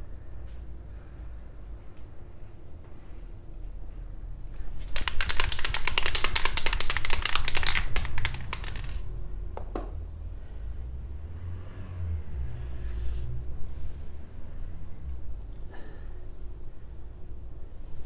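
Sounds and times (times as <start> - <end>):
spray can ball rattling: 4.6 - 9.0.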